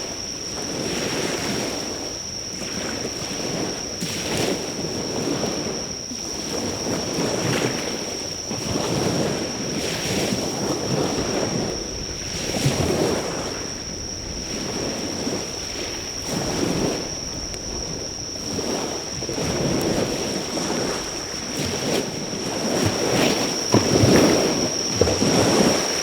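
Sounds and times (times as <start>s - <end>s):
high-pitched insect call: 0.0s - 26.0s
surf washing on beach: 6.6s - 26.0s.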